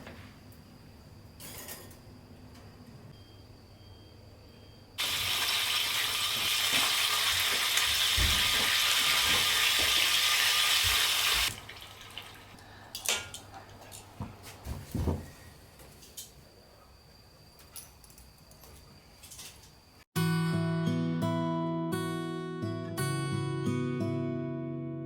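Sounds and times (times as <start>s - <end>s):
water pouring: 5.0s - 12.6s.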